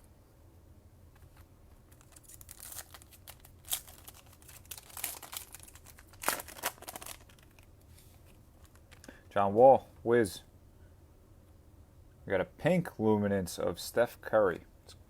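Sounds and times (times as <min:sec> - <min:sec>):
cards being handled: 0:01.2 - 0:09.1
foil wrapper crinkling and tearing: 0:01.9 - 0:07.8.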